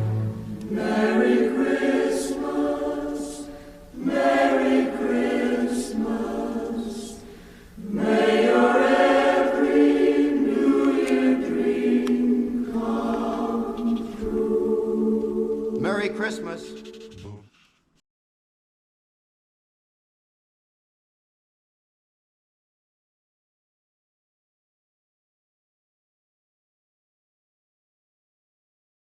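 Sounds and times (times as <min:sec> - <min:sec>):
choir singing held notes: 0:00.0 - 0:17.4.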